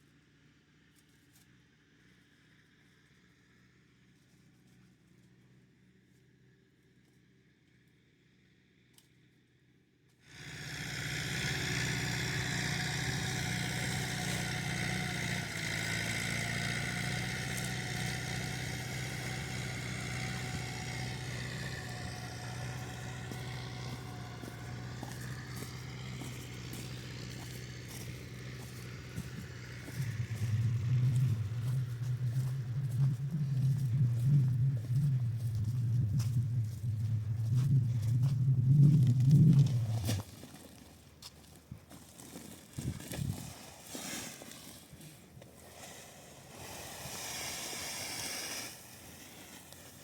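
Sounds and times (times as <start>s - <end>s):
vehicle engine running: 10.3s - 40.3s.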